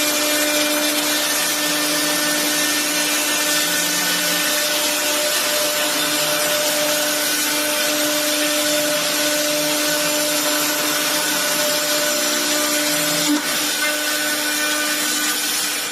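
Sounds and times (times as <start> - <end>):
router spindle whine: 0.0 - 15.9.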